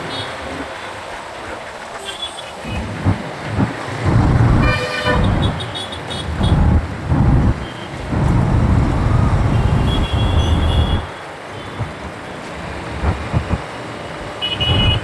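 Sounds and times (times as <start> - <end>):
road traffic: 2.5 - 15.0
motorcycle rumble: 4.0 - 11.1, 14.7 - 15.0
vehicle horn honking: 4.2 - 5.8, 9.3 - 11.1, 14.4 - 15.0.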